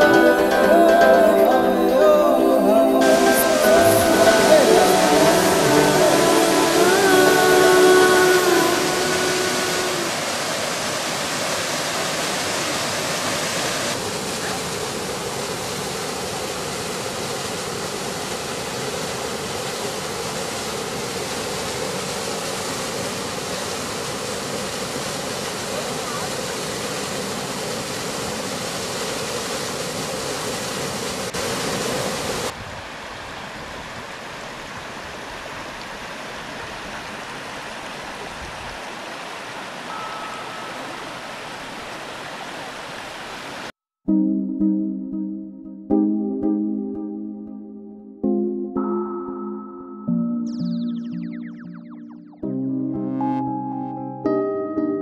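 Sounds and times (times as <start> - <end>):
mountain torrent rushing: 0.0 - 43.7.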